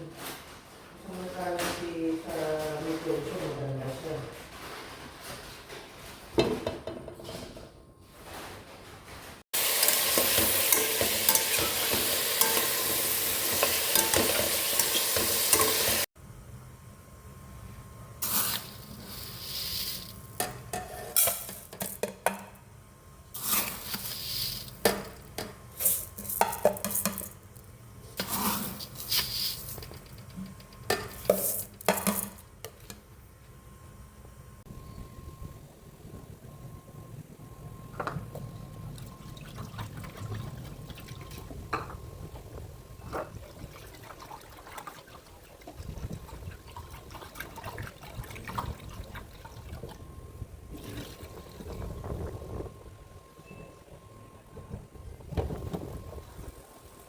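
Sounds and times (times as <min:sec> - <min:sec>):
food sizzling in a pan: 0:09.6 - 0:16.1
spoon scraping and clinking pan: 0:09.7 - 0:16.0.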